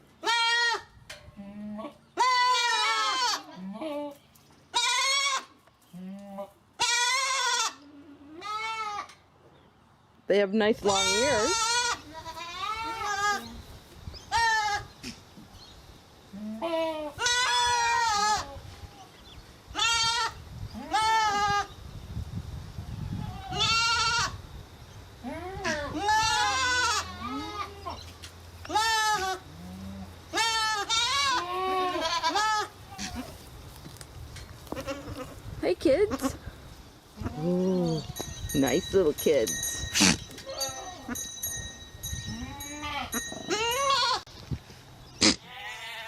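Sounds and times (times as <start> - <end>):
goats bleating: 0.2 - 0.8, 1.4 - 9.1, 10.8 - 13.5, 25.3 - 28.0, 28.6 - 33.4, 34.7 - 35.4, 42.3 - 44.3, 45.2 - 46.0.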